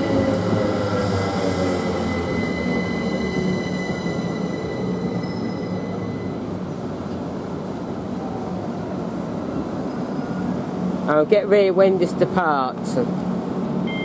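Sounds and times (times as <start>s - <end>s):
train electrical hum: 0.0s - 14.0s
thin high whining tones: 1.8s - 6.9s.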